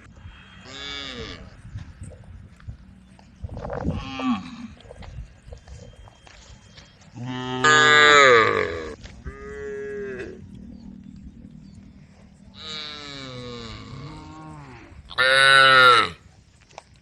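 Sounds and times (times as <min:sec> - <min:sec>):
cows mooing: 0:00.4 - 0:01.6, 0:07.2 - 0:10.8, 0:12.5 - 0:16.2.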